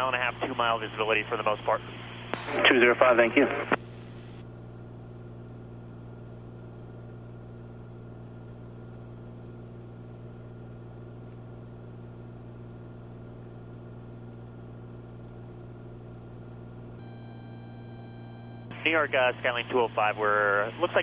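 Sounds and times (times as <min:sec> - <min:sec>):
light aircraft engine droning: 0:00.0 - 0:04.8, 0:17.0 - 0:21.0.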